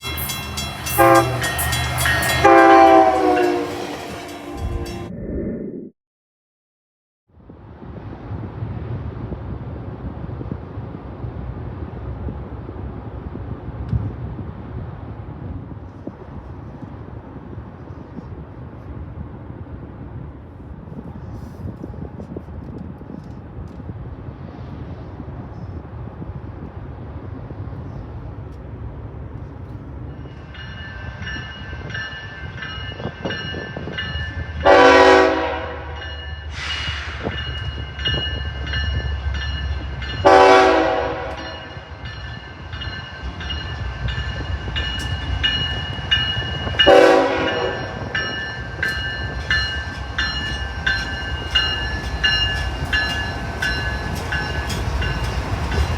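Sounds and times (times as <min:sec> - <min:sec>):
train rumbling: 0:00.0 - 0:05.6, 0:07.4 - 0:55.9
train horn blasts: 0:00.1 - 0:05.1, 0:34.6 - 0:36.0, 0:40.2 - 0:42.0, 0:46.7 - 0:48.4.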